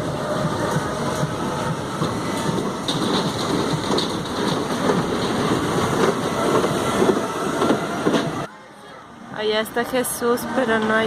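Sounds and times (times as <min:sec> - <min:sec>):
irregular clatter: 0:02.0 - 0:08.4.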